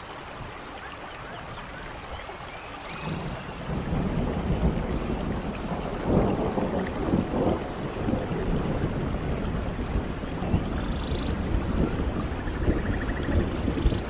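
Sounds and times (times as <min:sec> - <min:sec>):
rain falling: 0:00.0 - 0:14.0
thunder rumbling: 0:03.0 - 0:14.0.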